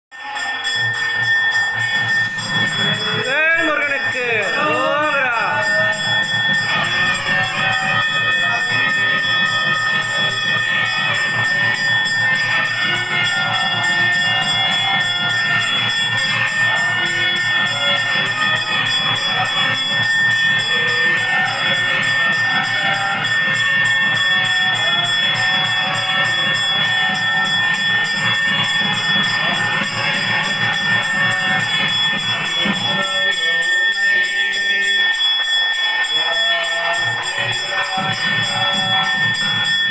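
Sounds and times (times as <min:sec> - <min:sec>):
bells ringing: 0:00.1 - 0:39.9
held high tone: 0:00.4 - 0:09.4.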